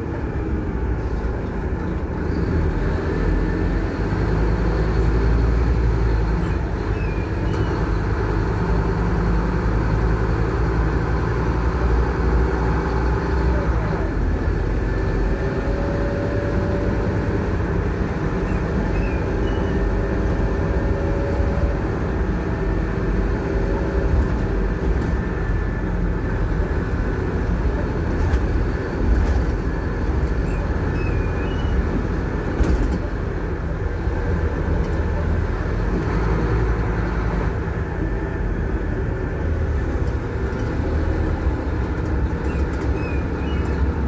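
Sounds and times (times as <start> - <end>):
bus diesel engine: 0.0 - 44.0
engine whine: 0.0 - 44.0
road noise: 0.0 - 44.0.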